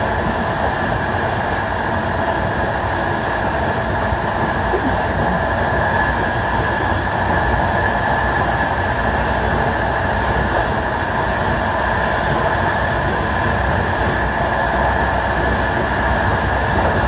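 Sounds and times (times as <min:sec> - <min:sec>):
train wheels rolling on rails: 0:00.0 - 0:17.0
steady high hum: 0:03.8 - 0:06.7.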